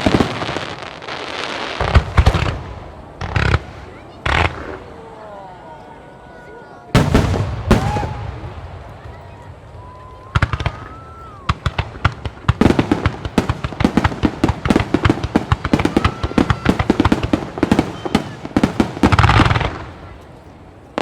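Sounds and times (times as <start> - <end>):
fireworks launching and bursting: 0.0 - 5.1, 6.9 - 20.3
heavy firework boom: 7.0 - 20.0.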